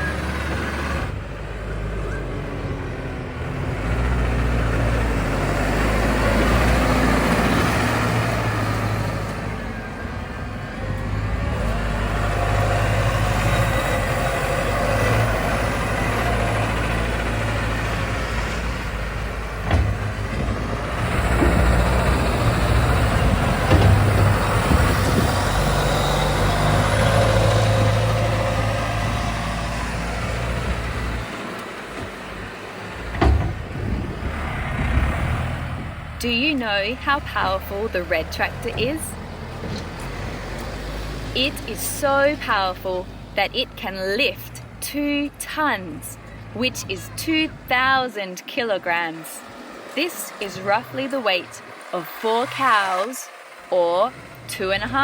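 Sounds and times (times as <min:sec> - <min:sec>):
tractor diesel engine: 0:00.0 - 0:55.0
sharp clunks: 0:19.6 - 0:20.6, 0:23.6 - 0:24.4, 0:33.0 - 0:33.8.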